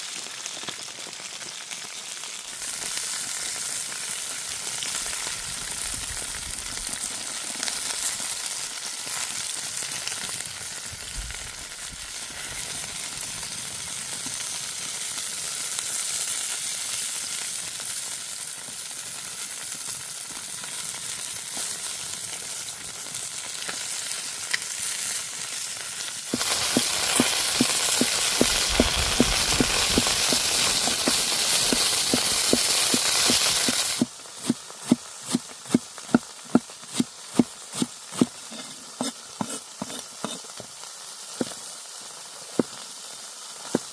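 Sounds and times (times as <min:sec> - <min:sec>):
chicken sizzling in hot oil: 0:00.0 - 0:43.9
crackling oil pops: 0:26.3 - 0:34.6.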